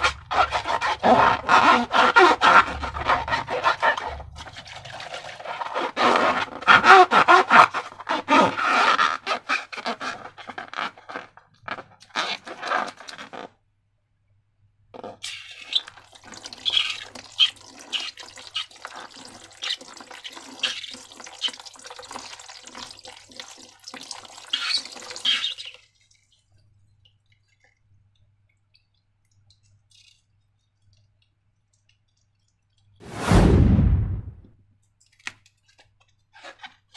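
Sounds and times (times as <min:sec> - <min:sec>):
deep booming sound: 0:33.1 - 0:34.5.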